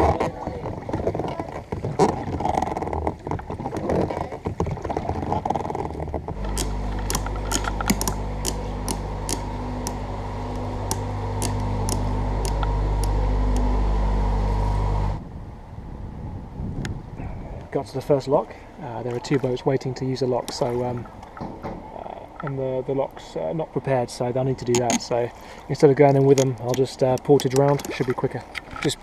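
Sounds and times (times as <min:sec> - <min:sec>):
low machine hum: 0:05.7 - 0:29.0
sharp clicks: 0:06.3 - 0:13.8, 0:24.6 - 0:25.1, 0:26.0 - 0:29.0.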